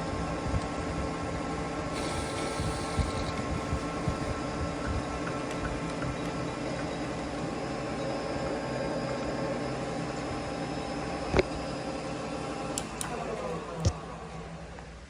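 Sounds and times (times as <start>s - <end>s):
metal lathe humming: 1.8s - 4.6s
lathe winding down: 1.9s - 4.5s.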